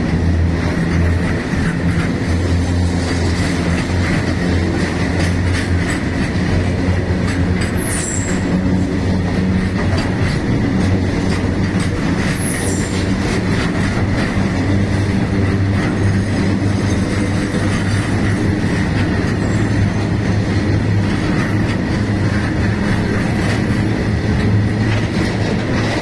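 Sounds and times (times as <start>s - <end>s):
train rumble: 0.0s - 26.0s
high wheel squeals: 7.6s - 8.9s, 12.2s - 13.4s, 17.8s - 20.2s.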